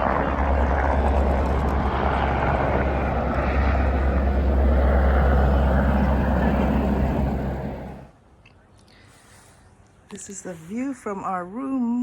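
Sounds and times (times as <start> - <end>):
aircraft engine roaring: 0.0 - 8.1.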